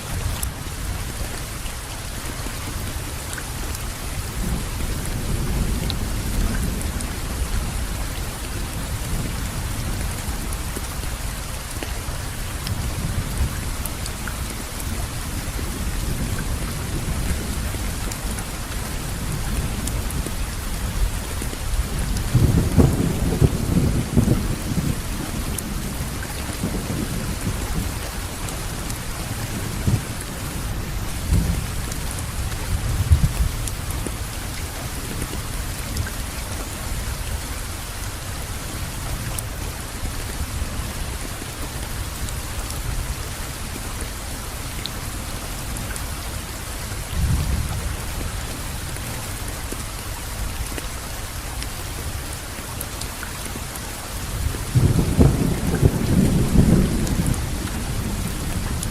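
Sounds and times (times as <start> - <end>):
steady rainfall: 0.0 - 58.9
rolling thunder: 21.8 - 28.0, 54.7 - 58.9.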